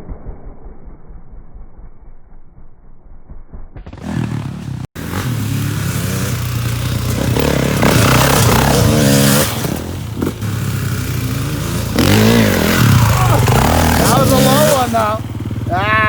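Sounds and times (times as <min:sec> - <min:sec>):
dirt bike engine revving: 0:03.9 - 0:16.0.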